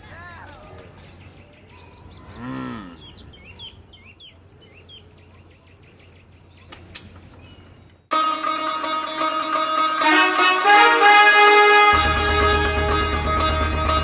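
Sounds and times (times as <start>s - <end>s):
music with plucked strings: 8.1s - 14.0s.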